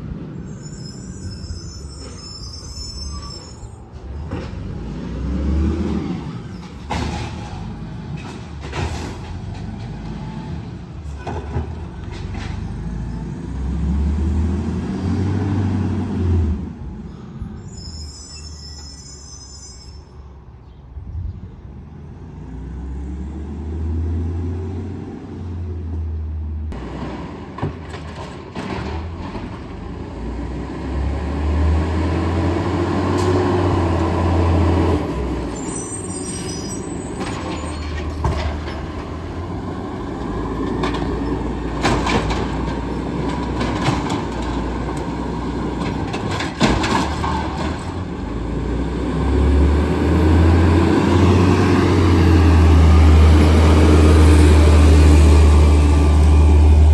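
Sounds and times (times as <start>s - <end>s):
diesel engine revving: 4.4s - 6.4s, 12.4s - 16.8s, 29.8s - 35.5s, 47.3s - 56.9s
clanks and knocks: 27.0s - 29.8s, 40.6s - 45.1s, 45.8s - 48.0s.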